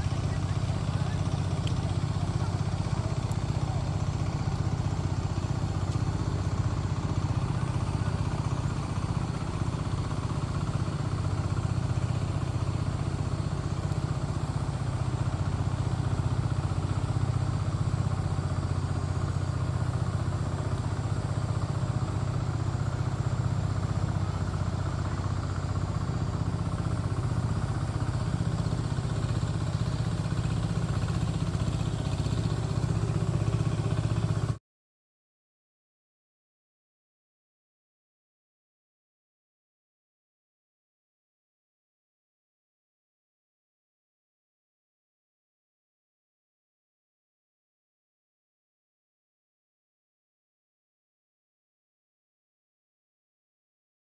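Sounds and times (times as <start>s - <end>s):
small engine humming: 0.0s - 34.6s.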